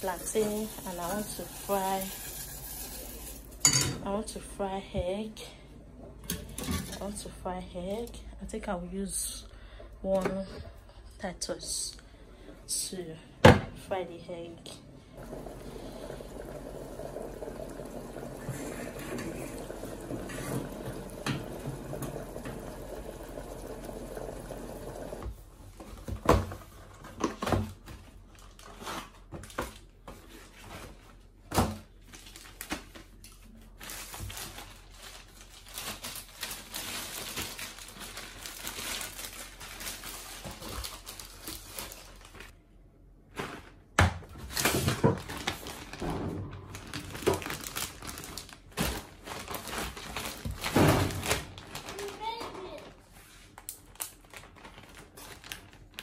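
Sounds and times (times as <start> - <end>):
water running: 0.0 - 3.7, 15.2 - 25.4
utensils and cookware clattering: 1.7 - 4.0.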